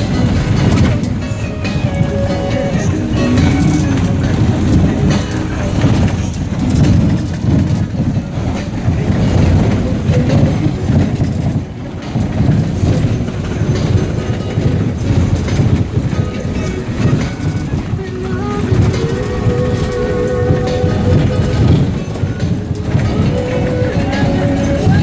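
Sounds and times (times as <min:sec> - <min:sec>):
cabin rattling and jolts: 0:00.0 - 0:25.0
tyre and suspension rumble: 0:00.0 - 0:25.0.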